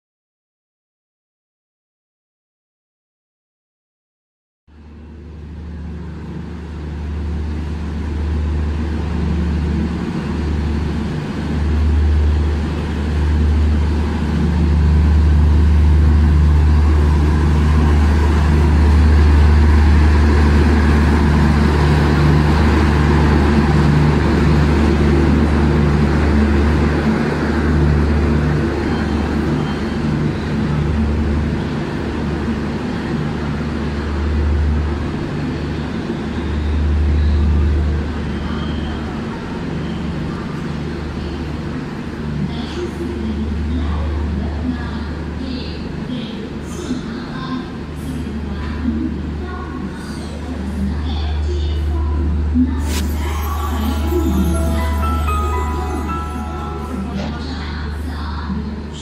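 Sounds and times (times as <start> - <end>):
loud low hum: 4.7 - 34.9
train coaches rumbling past: 4.8 - 59.0.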